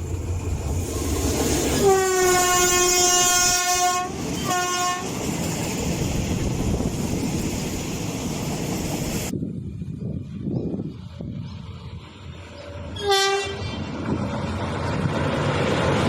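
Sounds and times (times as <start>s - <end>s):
rumble of passing train: 0.0s - 16.0s
train horn blasts: 1.8s - 5.1s, 12.8s - 13.9s.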